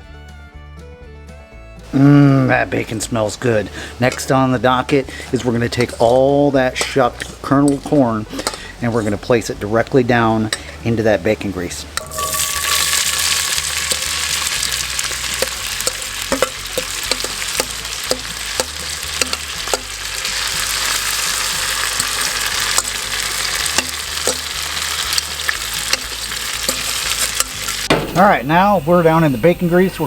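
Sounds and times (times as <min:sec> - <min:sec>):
corn sizzling in grease: 0:12.0 - 0:30.0
sharp clicks and taps: 0:15.4 - 0:19.9.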